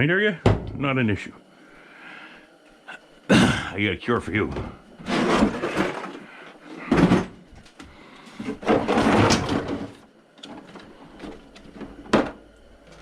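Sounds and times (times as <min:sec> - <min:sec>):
metal drawer sliding: 0:05.0 - 0:06.1, 0:08.6 - 0:10.0.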